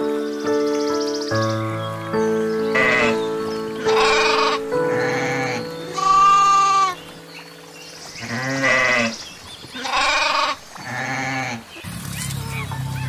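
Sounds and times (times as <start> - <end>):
soft background music: 0.0 - 9.1
goats bleating: 3.9 - 7.0.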